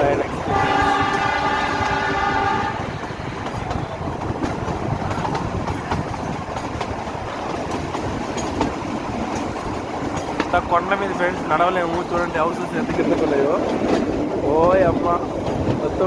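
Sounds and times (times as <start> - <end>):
train wheels clattering on rails: 0.0 - 16.0
train horn: 0.4 - 3.0.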